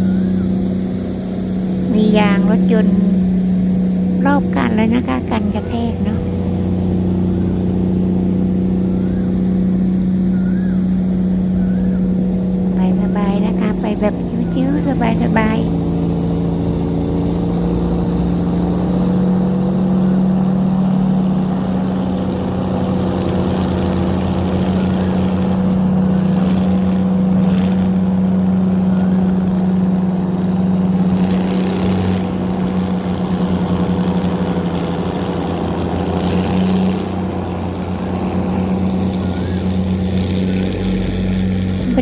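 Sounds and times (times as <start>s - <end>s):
tugboat engine running: 0.0s - 42.0s.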